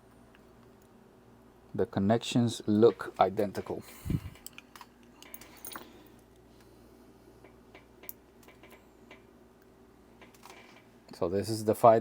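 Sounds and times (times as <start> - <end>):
low steady hum: 0.0 - 12.0
small parts clicking and tapping: 4.4 - 6.4, 7.4 - 10.9.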